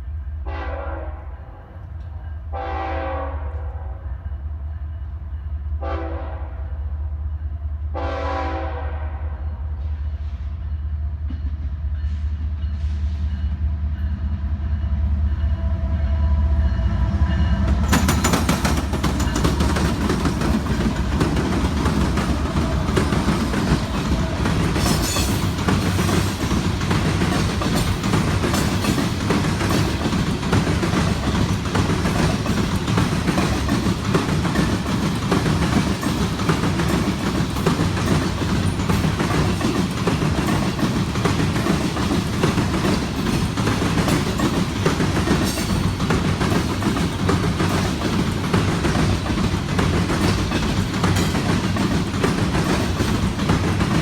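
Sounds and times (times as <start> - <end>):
freight train wheels clicking: 14.6 - 54.0.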